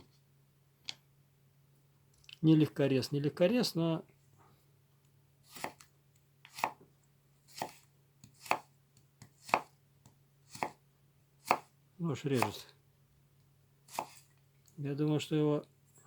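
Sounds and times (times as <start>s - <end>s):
knife slicing carrot on board: 5.5s - 6.8s, 7.5s - 10.8s, 11.4s - 11.7s, 13.9s - 14.3s.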